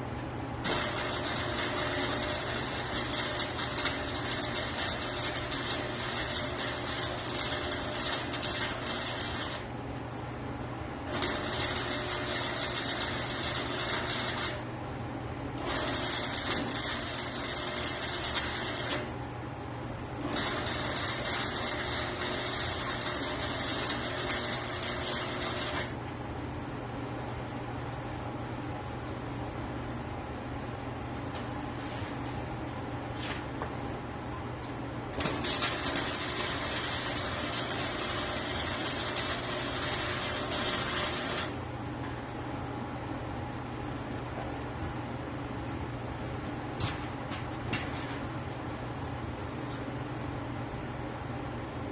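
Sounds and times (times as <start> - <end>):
welding machine low hum: 0.0 - 27.8, 34.6 - 43.3
welding crackling and sizzling: 0.6 - 9.7, 11.1 - 14.7, 15.6 - 19.2, 20.2 - 26.0, 35.2 - 41.6.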